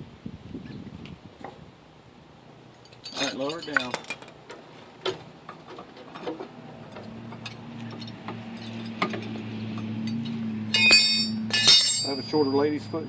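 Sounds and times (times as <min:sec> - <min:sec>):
steady low hum: 0:01.2 - 0:13.0
ringing metal clanks: 0:02.8 - 0:13.0.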